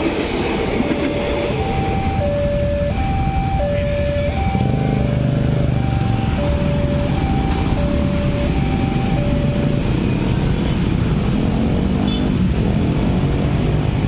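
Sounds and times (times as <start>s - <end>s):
road traffic: 0.0s - 14.0s
level crossing two-tone alarm: 0.8s - 10.4s.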